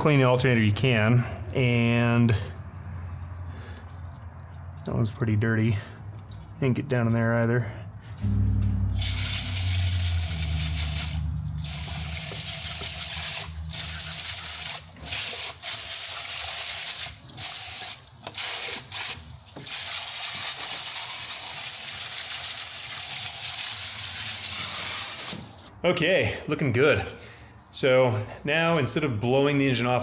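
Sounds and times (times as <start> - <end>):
low hum: 8.0 - 14.5
hose spray hissing: 9.0 - 20.9.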